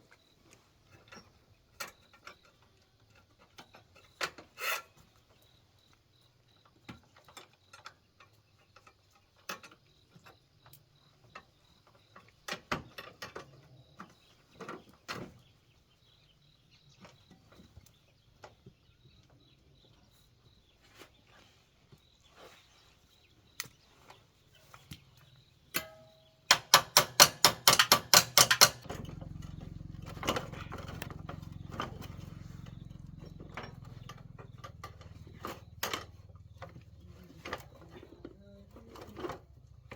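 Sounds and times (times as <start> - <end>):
hand tools clicking and knocking: 25.7 - 39.9
ratchet clicking: 26.5 - 28.9
low hum: 28.8 - 36.6.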